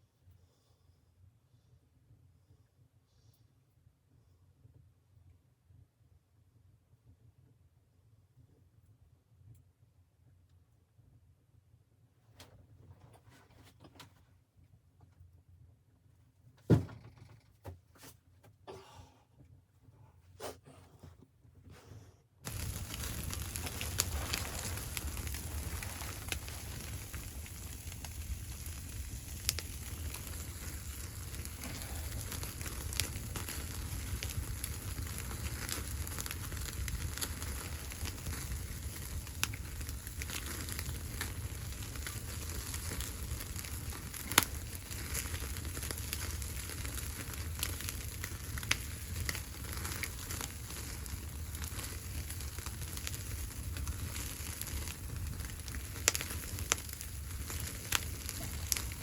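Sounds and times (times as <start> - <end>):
wood fire crackling and popping: 22.4 - 59.0.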